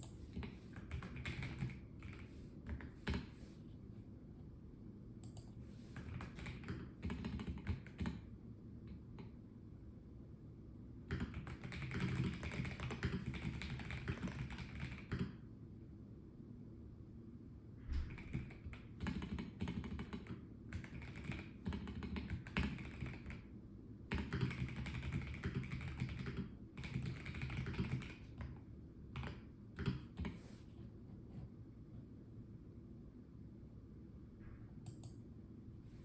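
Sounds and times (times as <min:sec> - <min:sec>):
mechanical keyboard typing: 0:00.0 - 0:03.3, 0:05.2 - 0:08.3, 0:11.1 - 0:15.4, 0:18.1 - 0:23.4, 0:24.1 - 0:28.6, 0:29.2 - 0:30.4.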